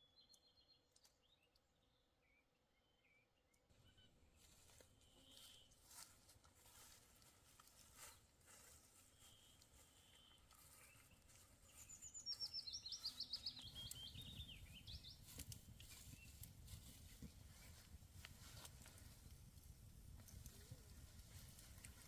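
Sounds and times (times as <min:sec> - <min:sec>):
songbird singing high notes: 0:11.8 - 0:15.2.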